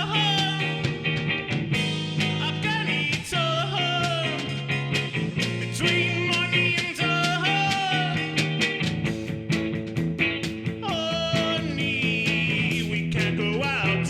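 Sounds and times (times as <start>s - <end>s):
person singing: 0.0s - 0.9s, 2.4s - 4.7s, 5.4s - 8.6s, 10.8s - 14.0s
rock band playing live: 0.0s - 14.0s.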